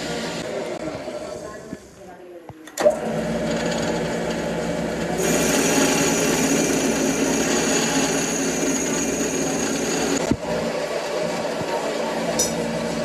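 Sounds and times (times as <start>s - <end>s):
metalworking machine whining and grinding: 0.0s - 2.0s, 2.8s - 13.0s
machinery humming: 2.8s - 13.0s.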